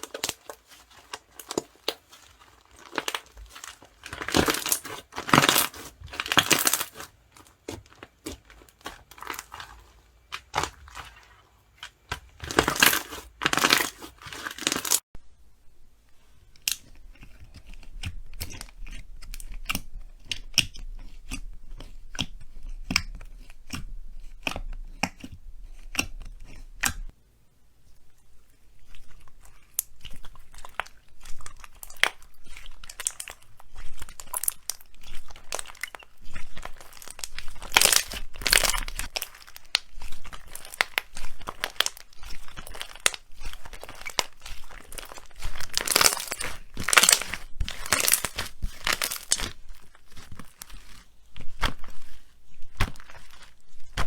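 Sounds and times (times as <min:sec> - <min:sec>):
slime crackling and popping: 0:00.0 - 0:15.0, 0:28.8 - 0:54.0.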